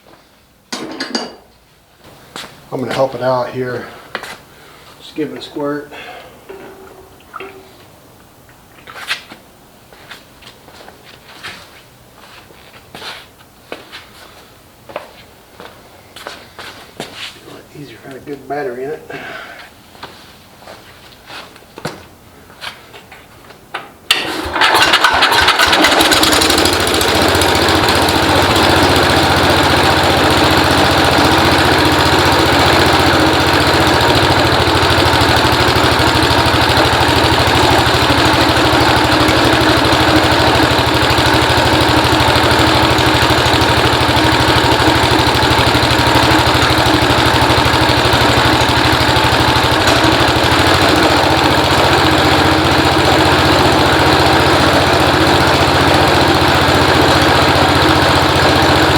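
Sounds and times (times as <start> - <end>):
small engine starting and running: 24.1 - 58.9.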